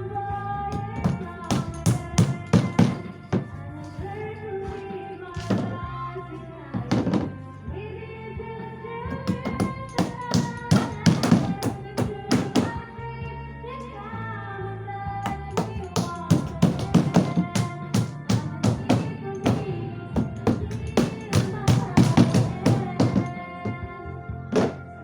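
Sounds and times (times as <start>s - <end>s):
background music: 0.0s - 25.0s
sharp uneven knocks: 0.8s - 3.5s, 9.2s - 12.8s, 15.3s - 23.8s.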